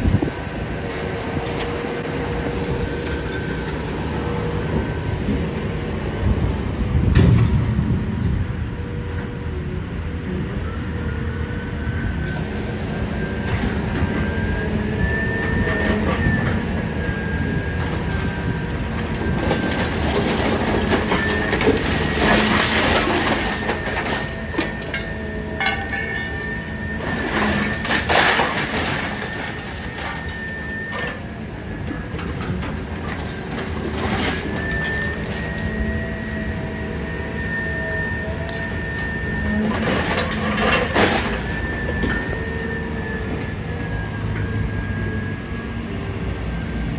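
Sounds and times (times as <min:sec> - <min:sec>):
baler machine drone and whine: 0:00.0 - 0:46.9
scrap metal crunching: 0:13.4 - 0:36.6, 0:38.2 - 0:43.7.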